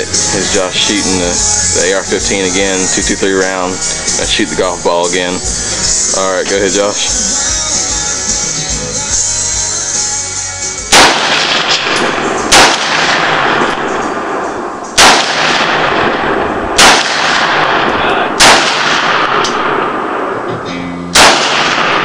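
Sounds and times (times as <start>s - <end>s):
rifle shots: 10.9s - 20.5s, 21.1s - 22.0s.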